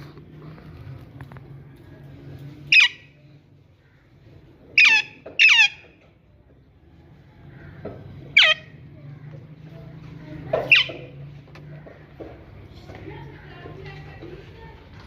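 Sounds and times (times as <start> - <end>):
parrot squawking: 2.7 - 3.1, 4.8 - 6.0, 8.3 - 8.8, 10.7 - 11.1.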